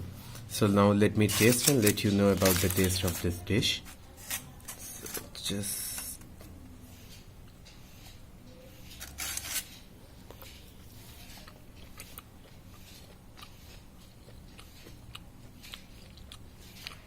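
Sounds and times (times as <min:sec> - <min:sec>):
person chewing: 0:07.0 - 0:17.0.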